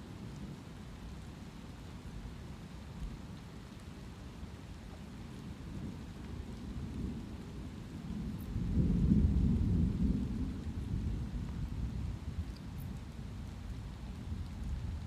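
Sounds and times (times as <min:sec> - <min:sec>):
light rain hissing: 0:00.0 - 0:15.0
low roll of thunder: 0:05.6 - 0:15.0.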